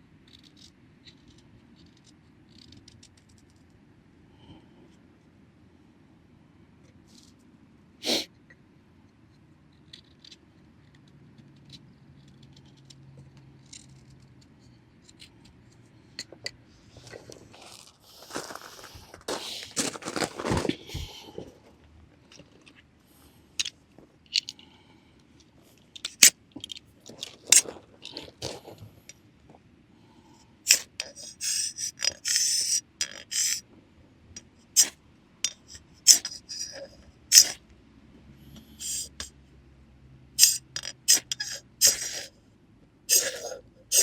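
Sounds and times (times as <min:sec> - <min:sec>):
scraping by hand: 0:16.1 - 0:22.8, 0:43.1 - 0:44.0.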